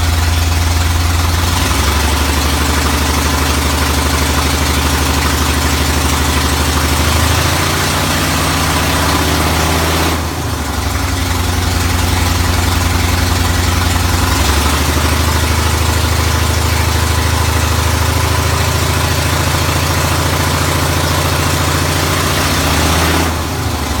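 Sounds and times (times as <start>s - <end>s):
engine idling roughly: 0.0s - 24.0s.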